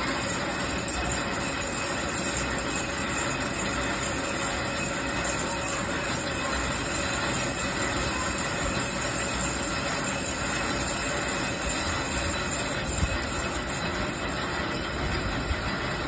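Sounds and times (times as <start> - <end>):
metal lathe machining: 0.0 - 16.0
thin whines: 0.0 - 16.0.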